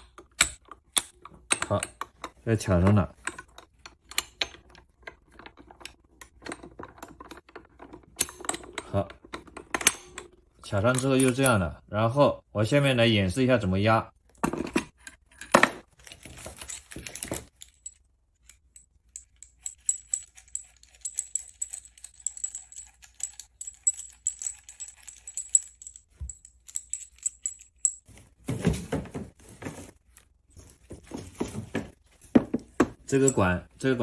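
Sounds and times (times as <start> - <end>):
small metal parts clinking: 15.3 - 28.2.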